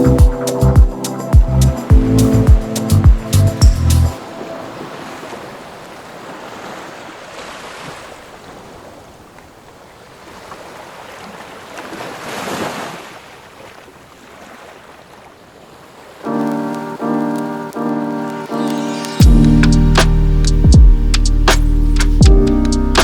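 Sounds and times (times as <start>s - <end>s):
wind: 0.0s - 23.0s
ocean surf washing in: 4.2s - 9.1s, 15.8s - 20.6s.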